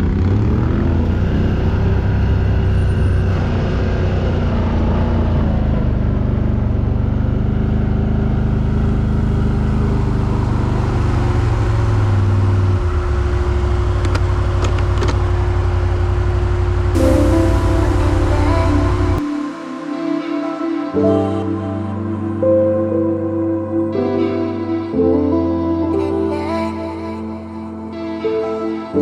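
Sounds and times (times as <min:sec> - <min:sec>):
quad bike engine running: 0:00.0 - 0:19.2.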